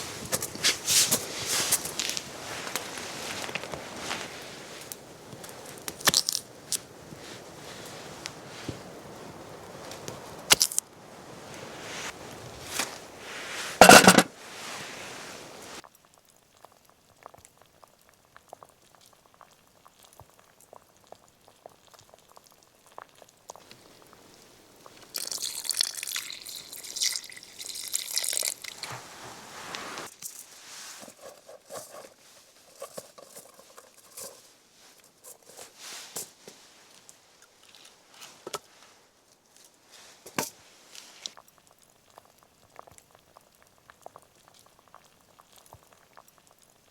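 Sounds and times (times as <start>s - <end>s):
cookware clinking: 13.8s - 14.3s
liquid pouring: 25.1s - 29.0s.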